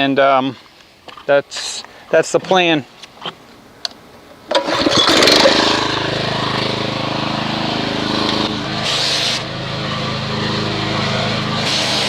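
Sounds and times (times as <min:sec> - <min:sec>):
pressure washer motor hum: 0:04.5 - 0:12.0
hissing spray: 0:06.3 - 0:12.0.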